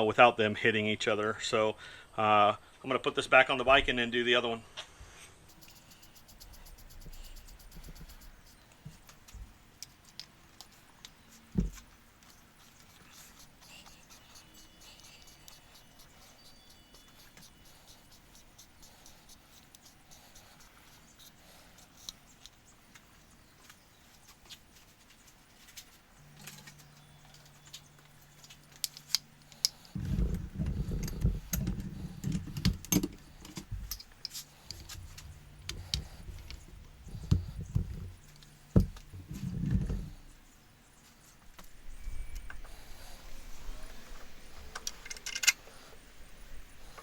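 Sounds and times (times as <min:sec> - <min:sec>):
faint steady hum: 0:00.0 - 0:47.0
metallic clicks of tools: 0:27.4 - 0:36.6, 0:44.7 - 0:45.7.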